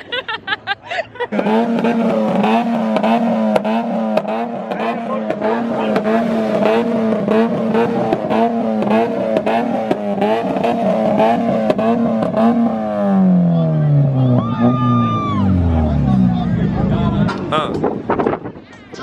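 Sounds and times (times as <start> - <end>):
car engine at rev limiter: 1.3 - 18.5
exhaust pops and crackles: 1.8 - 12.6, 16.2 - 19.0.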